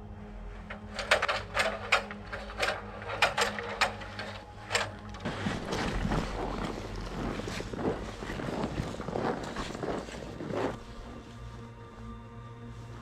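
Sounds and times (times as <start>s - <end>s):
steady low hum: 0.0s - 13.0s
sharp clicks and knocks: 0.6s - 6.0s.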